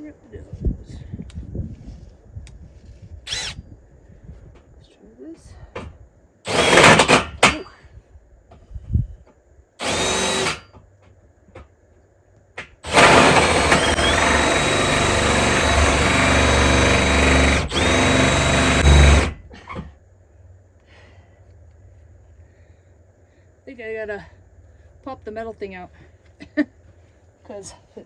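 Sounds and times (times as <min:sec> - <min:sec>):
power drill with hole saw cutting steel: 0:03.3 - 0:03.6, 0:06.5 - 0:07.6, 0:09.8 - 0:10.7, 0:12.8 - 0:19.4.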